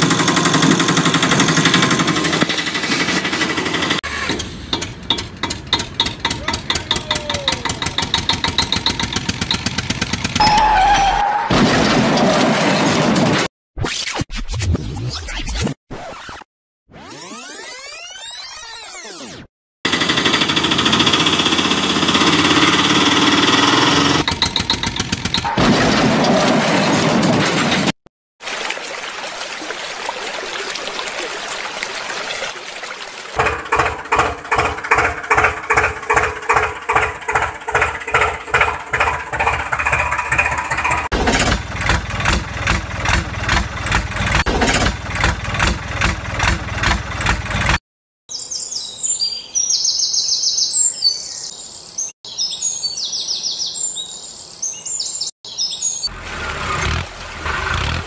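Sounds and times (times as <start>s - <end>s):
tractor diesel engine chugging: 0.0s - 10.9s, 19.9s - 25.5s, 33.4s - 47.8s.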